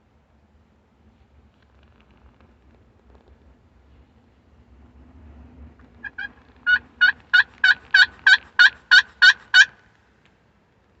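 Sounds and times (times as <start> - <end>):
turkey call yelps: 6.0 - 9.8.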